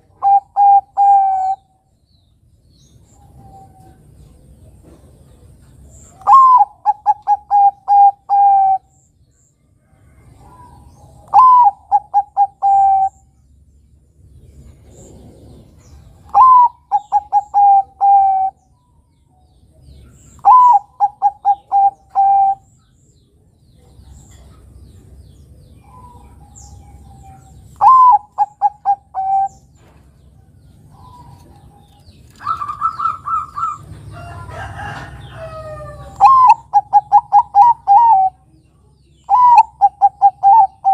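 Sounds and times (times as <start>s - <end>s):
dove cooing: 0.0s - 1.7s, 6.2s - 9.0s, 10.4s - 13.3s, 14.9s - 18.6s, 20.3s - 22.7s, 25.8s - 29.7s, 30.9s - 38.5s, 39.2s - 40.9s
higher held bird call: 20.4s - 22.7s.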